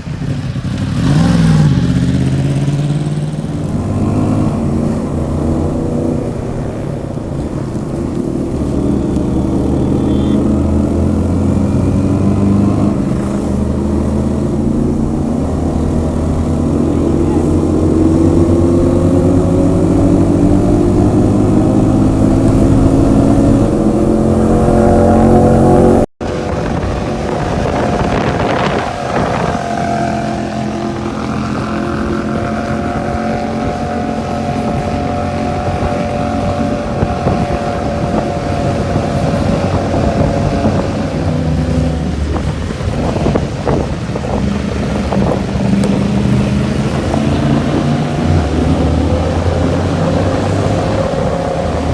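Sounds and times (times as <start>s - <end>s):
motorcycle engine accelerating: 0.0s - 51.9s
wind noise on microphone: 0.0s - 51.9s.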